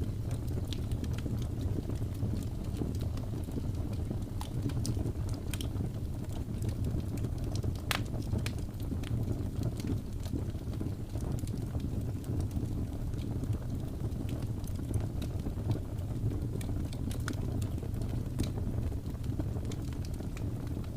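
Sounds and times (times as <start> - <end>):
fire popping: 0.0 - 20.9
low fire rumble: 0.0 - 20.9
wood fire crackling: 0.0 - 20.9.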